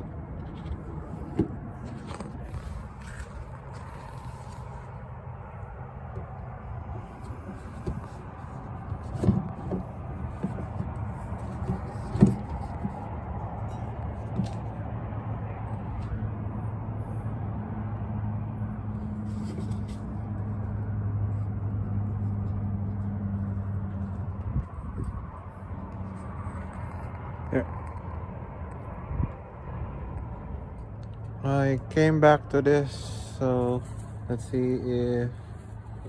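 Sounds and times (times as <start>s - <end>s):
vehicle engine hum: 0.0s - 36.0s.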